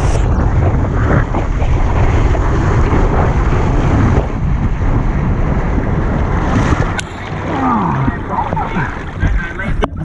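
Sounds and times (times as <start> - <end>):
rushing water on slide: 0.0 - 10.0
wind buffeting microphone: 0.0 - 10.0.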